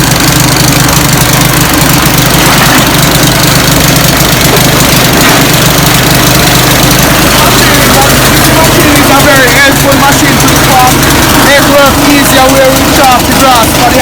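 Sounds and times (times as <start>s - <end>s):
chaff cutter mechanical drone: 0.0s - 14.0s.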